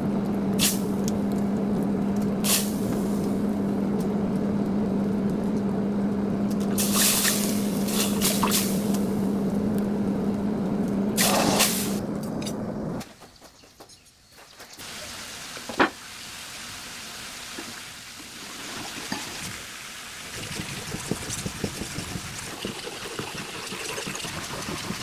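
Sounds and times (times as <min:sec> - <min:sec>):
motor humming: 0:00.0 - 0:13.0
steady hiss: 0:02.4 - 0:03.5, 0:06.7 - 0:10.0, 0:11.2 - 0:13.0, 0:14.8 - 0:18.4.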